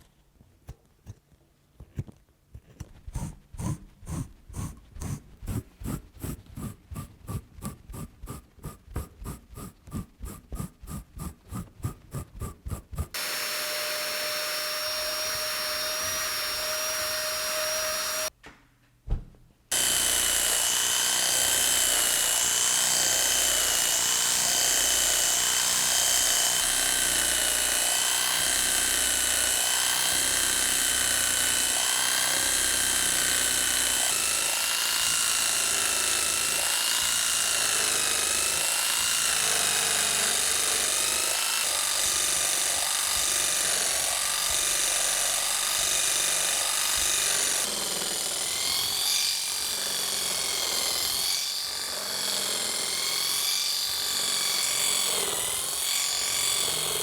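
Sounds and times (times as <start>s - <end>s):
electric motor whining: 3.6s - 18.3s.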